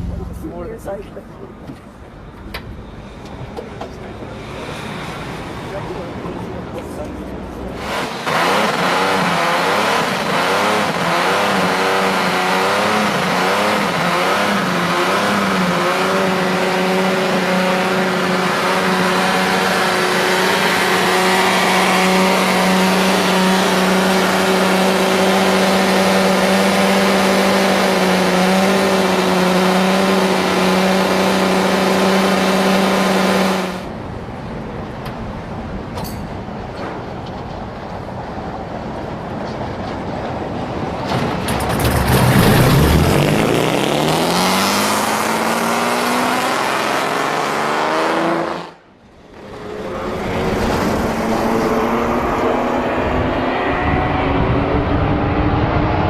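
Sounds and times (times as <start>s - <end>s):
car engine revving: 0.0s - 1.2s, 7.7s - 33.9s, 41.5s - 56.0s.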